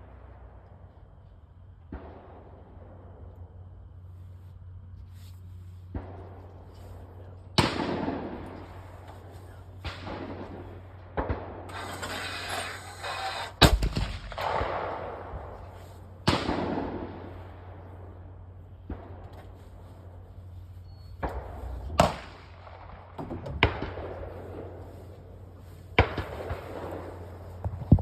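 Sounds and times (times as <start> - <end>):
sharp bangs with echo: 7.5 - 9.1, 9.8 - 18.1, 21.2 - 24.9, 25.8 - 27.6.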